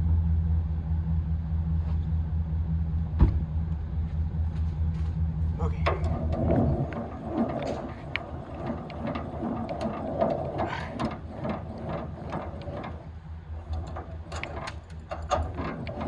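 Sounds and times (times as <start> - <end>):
trailer jack gears clicking: 5.6 - 16.0.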